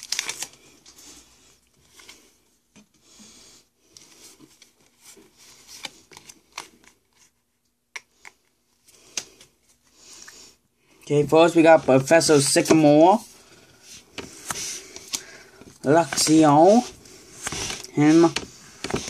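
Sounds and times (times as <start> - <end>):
cards rustling: 0.0 - 2.4, 4.0 - 7.4, 11.4 - 19.0.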